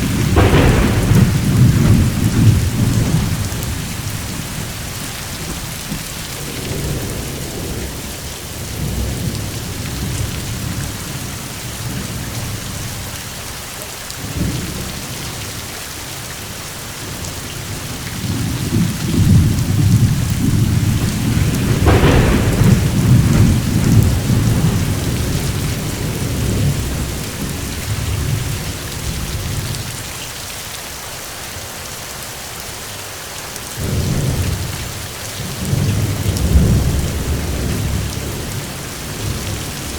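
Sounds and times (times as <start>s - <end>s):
thunder crack: 0.0s - 12.3s, 17.7s - 29.9s, 33.8s - 39.9s
rolling thunder: 0.0s - 13.1s, 17.0s - 30.1s, 33.8s - 39.9s
steady rain: 0.0s - 39.9s.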